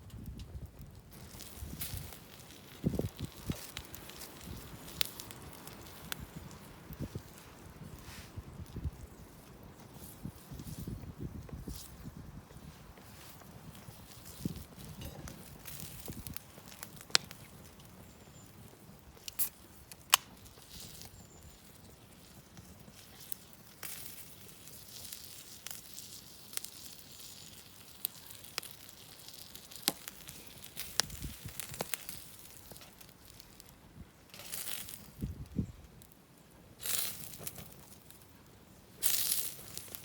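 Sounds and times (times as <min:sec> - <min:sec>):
campfire crackling and popping: 0:00.0 - 0:40.0.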